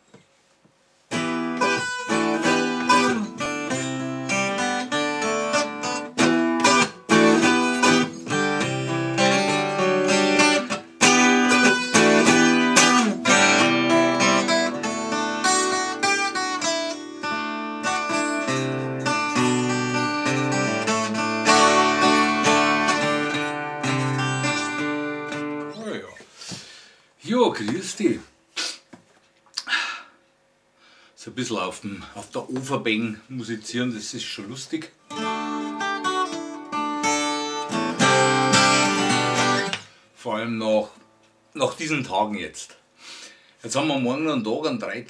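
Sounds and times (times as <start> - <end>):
acoustic plucked string instrument: 1.1 - 25.8, 35.1 - 39.9.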